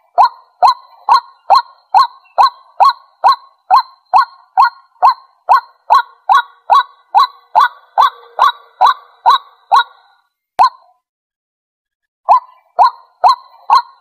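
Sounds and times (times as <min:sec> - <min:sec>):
waterhen calling: 0:00.0 - 0:10.8.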